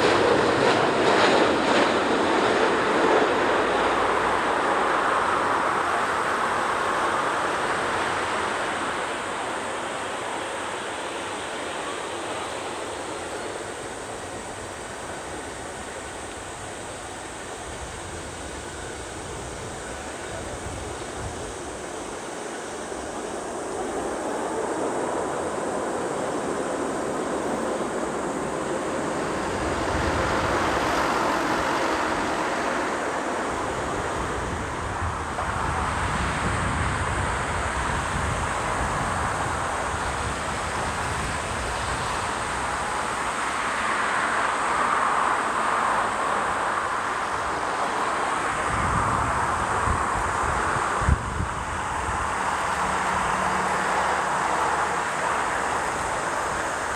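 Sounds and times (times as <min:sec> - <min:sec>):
jet airliner passing overhead: 0:00.0 - 0:56.9
wind buffeting microphone: 0:13.0 - 0:43.7, 0:45.9 - 0:56.9.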